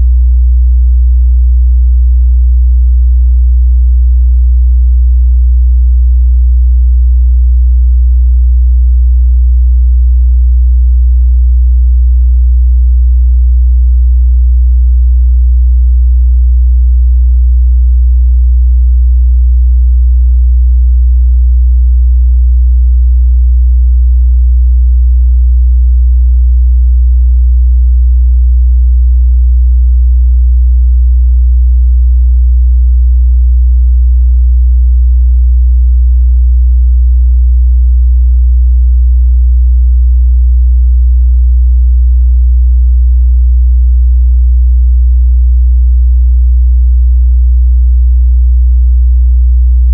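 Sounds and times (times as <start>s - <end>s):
deep bass sine-wave hum: 0.0s - 39.0s, 49.6s - 49.9s.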